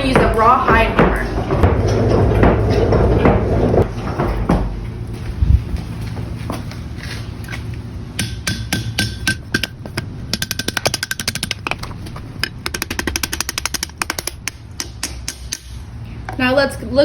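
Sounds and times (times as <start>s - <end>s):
low hum: 0.0s - 14.8s
mallet tapping metal bar: 8.2s - 15.7s.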